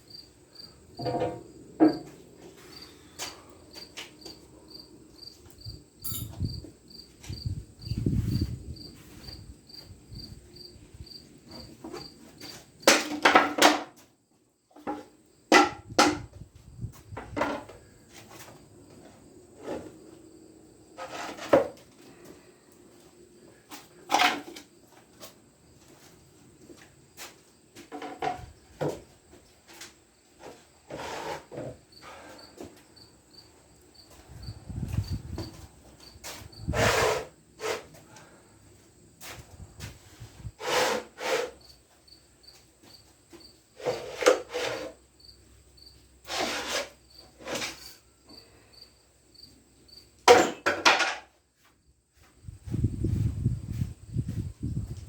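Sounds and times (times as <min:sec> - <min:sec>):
faint high chirp: 0:06.0 - 0:06.5
metal tools clattering on workbench: 0:06.0 - 0:06.5, 0:50.3 - 0:51.3.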